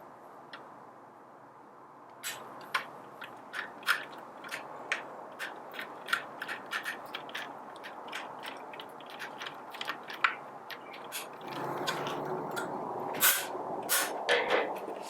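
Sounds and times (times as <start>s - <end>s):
tools clicking on grinder parts: 2.2s - 14.1s.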